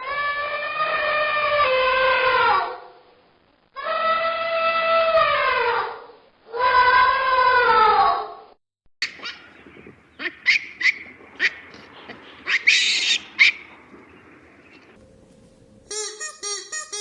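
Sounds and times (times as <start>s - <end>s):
longer harsh animal call: 0.0s - 2.9s, 3.8s - 8.4s, 12.4s - 13.7s
animal high-pitched calls: 10.2s - 13.8s.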